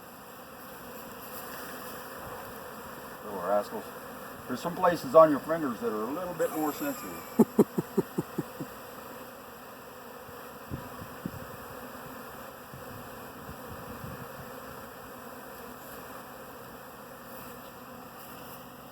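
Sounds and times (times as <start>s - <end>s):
bee swarm buzzing: 0.0s - 18.9s.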